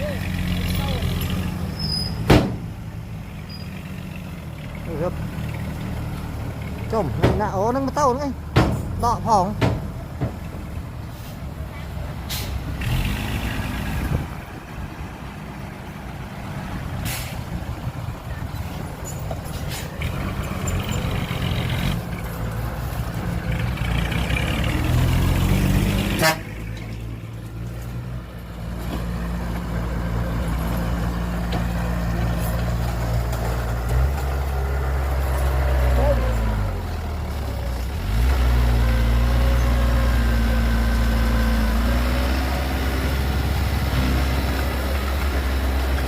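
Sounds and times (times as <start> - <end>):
heavy diesel engines working: 0.0 - 46.0.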